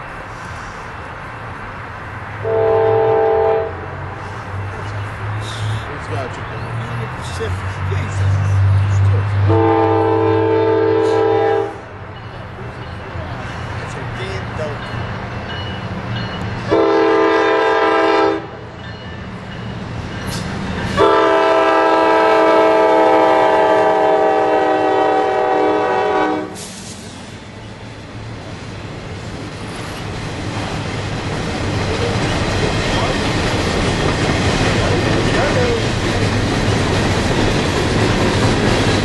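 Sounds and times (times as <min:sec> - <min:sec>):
locomotive multi-chime horn: 0:02.4 - 0:03.8, 0:09.5 - 0:11.8, 0:15.6 - 0:18.6, 0:20.8 - 0:26.6
train wheels clickety-clack: 0:18.7 - 0:21.5, 0:28.4 - 0:39.0.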